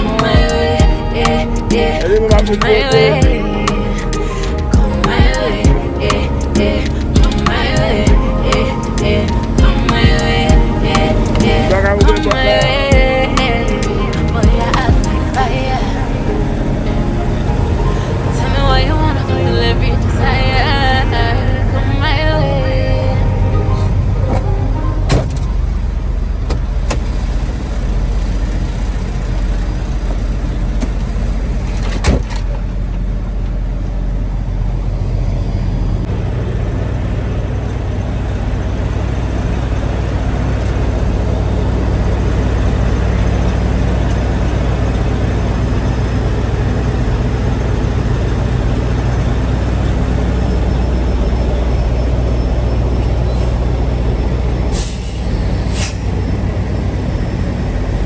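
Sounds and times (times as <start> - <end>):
truck engine running: 0.0 - 22.6, 23.3 - 58.0
road noise: 0.0 - 58.0
short hiss: 54.8 - 56.1.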